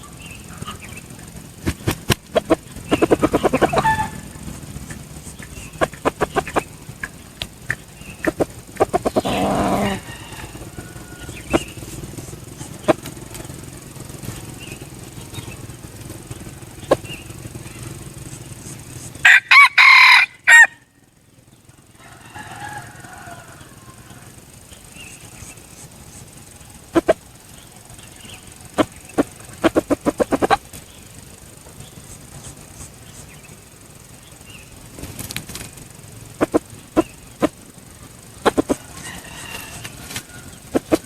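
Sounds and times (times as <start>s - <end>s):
wing beats: 0.0s - 41.0s
rooster crowing: 2.4s - 6.8s, 8.0s - 13.8s, 19.2s - 21.0s, 21.8s - 25.2s, 38.4s - 41.0s.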